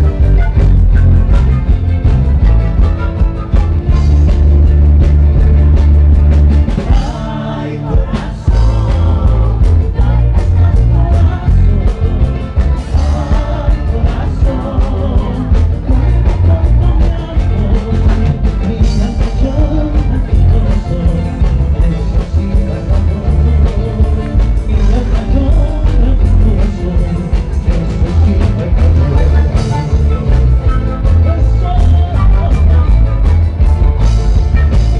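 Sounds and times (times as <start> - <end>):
drums: 0.0 - 34.9
heavy bass: 0.0 - 34.9
live rock band: 0.0 - 34.9
person singing: 6.8 - 34.0.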